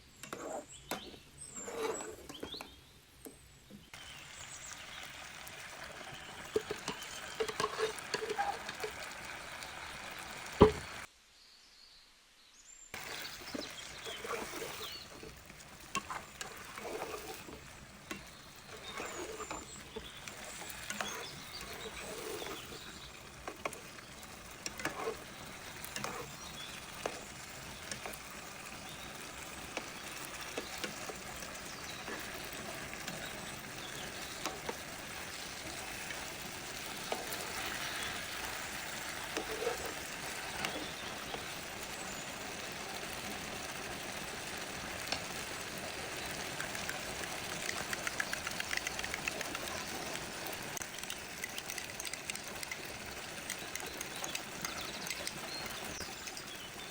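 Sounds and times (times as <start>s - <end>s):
food sizzling in a pan: 4.0s - 11.1s, 12.9s - 56.9s
spoon stirring and scraping: 6.2s - 9.0s, 13.0s - 41.5s.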